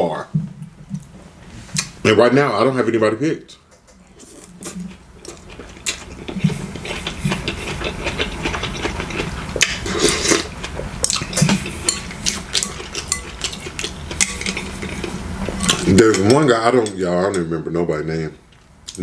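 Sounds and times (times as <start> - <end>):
cutlery clinking on dishes: 11.4 - 15.0, 15.6 - 17.5.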